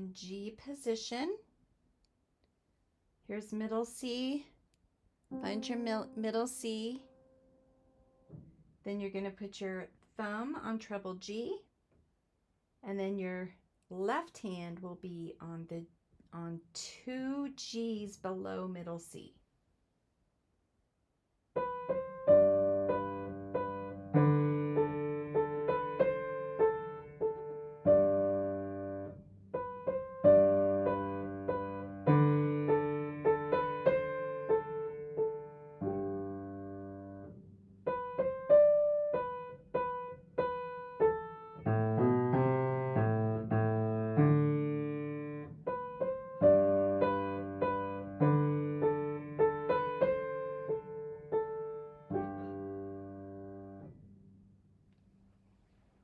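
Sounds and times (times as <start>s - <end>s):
simple piano piece: 5.3s - 8.6s, 21.5s - 54.6s.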